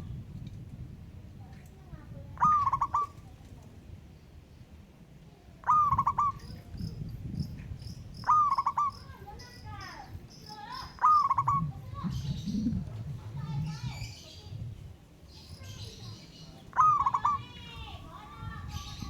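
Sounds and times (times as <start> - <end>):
dove cooing with rattling trill: 2.4 - 3.2, 5.6 - 14.9, 15.6 - 17.8
faint high chirping: 5.7 - 19.0.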